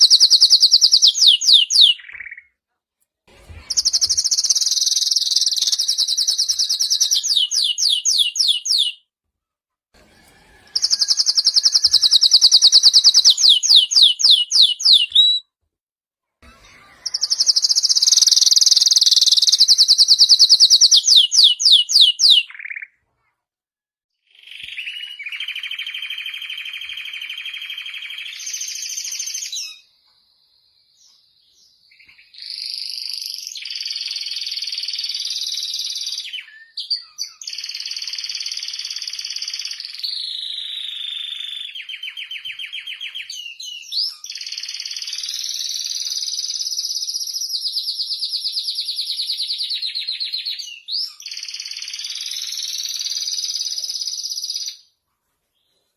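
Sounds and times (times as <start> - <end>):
canary singing trills: 0.0 - 2.5, 3.7 - 9.0, 10.8 - 15.5, 16.8 - 23.0, 31.6 - 54.9.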